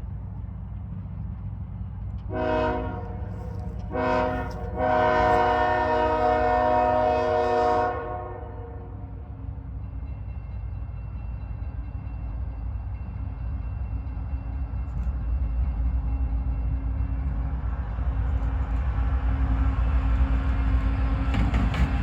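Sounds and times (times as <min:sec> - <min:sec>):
freight train rumble: 0:00.0 - 0:22.0
locomotive air horn blasts: 0:02.3 - 0:09.0.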